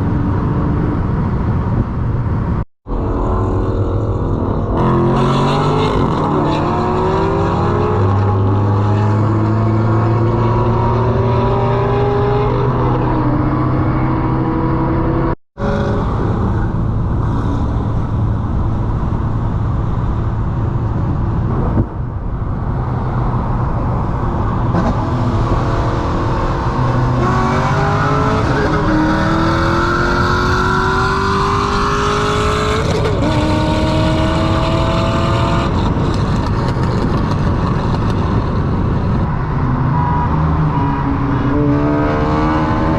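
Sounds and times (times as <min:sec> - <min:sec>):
car engine accelerating through gears: 0:24.6 - 0:38.2, 0:39.8 - 0:42.9.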